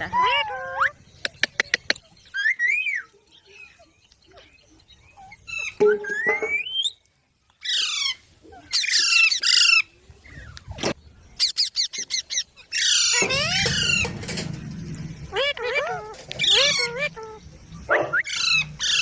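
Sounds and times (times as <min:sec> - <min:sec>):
parakeets squawking: 0:07.6 - 0:09.9, 0:11.4 - 0:19.0.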